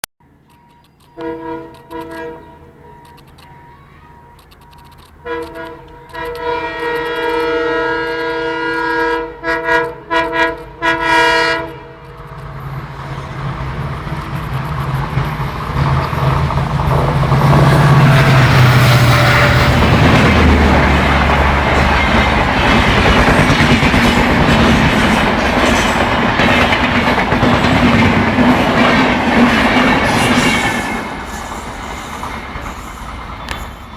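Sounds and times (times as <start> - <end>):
train coaches rumble and wheel clatter: 0.2 - 33.9
diesel locomotive horn blasts: 1.1 - 4.4, 5.2 - 12.2, 17.5 - 22.2
locomotive engine passing: 11.6 - 33.9.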